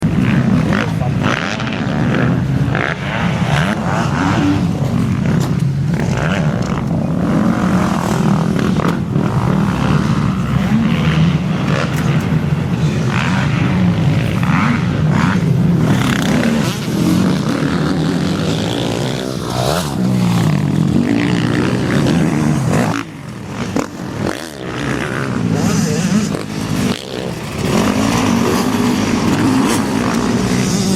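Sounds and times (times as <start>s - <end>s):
motocross bike engines revving: 0.0s - 30.9s.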